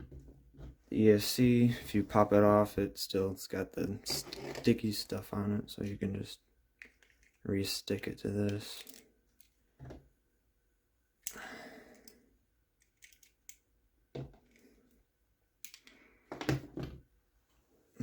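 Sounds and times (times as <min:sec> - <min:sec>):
plastic parts clicking: 0:08.4 - 0:09.6, 0:12.8 - 0:13.6, 0:15.6 - 0:16.0.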